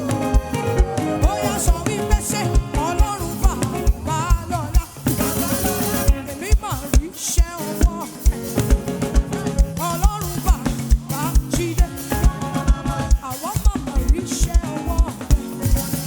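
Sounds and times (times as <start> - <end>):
keyboard chords: 0.0 - 4.4
wavering lead melody: 0.0 - 4.4.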